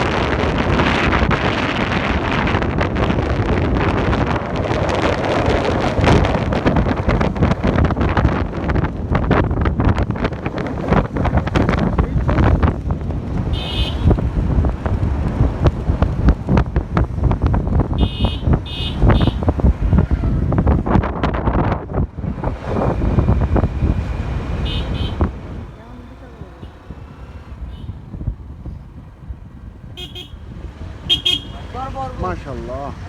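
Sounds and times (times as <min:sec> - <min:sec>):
wind buffeting microphone: 0:00.0 - 0:33.0
vehicle horn beeps: 0:13.6 - 0:14.2, 0:18.0 - 0:19.4, 0:24.6 - 0:25.3, 0:30.0 - 0:30.4, 0:31.1 - 0:31.7.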